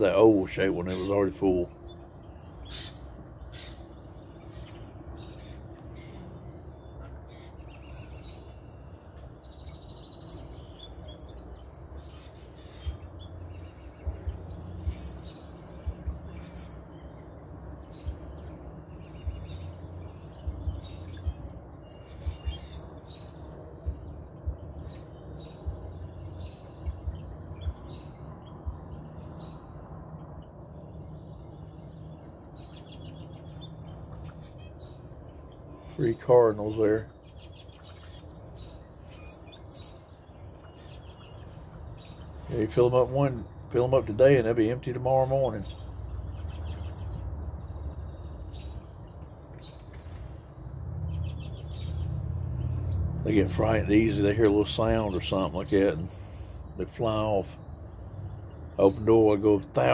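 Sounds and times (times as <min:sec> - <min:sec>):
flock of small birds chirping: 0:00.0 - 0:59.9
low bumps: 0:12.7 - 0:16.9.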